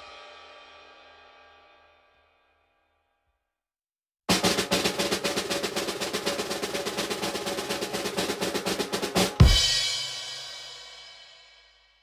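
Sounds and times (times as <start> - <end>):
snare drum roll: 4.3 - 10.9.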